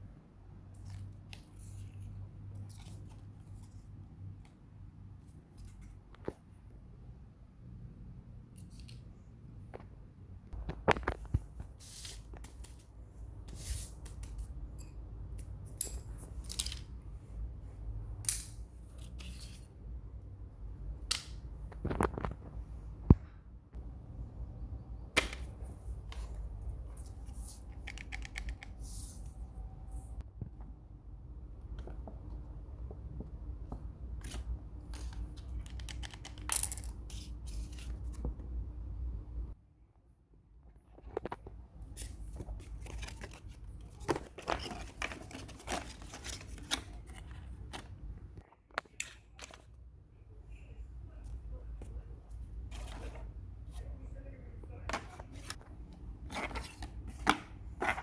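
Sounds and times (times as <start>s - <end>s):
rustles and scrapes: 40.8s - 48.2s, 50.5s - 58.0s.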